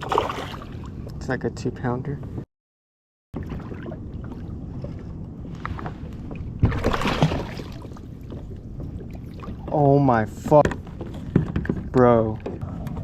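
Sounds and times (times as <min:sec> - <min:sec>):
water splashing: 0:00.0 - 0:00.8, 0:03.4 - 0:10.0
water noise: 0:00.0 - 0:01.2, 0:03.4 - 0:13.0
wind: 0:00.0 - 0:02.5, 0:03.3 - 0:13.0.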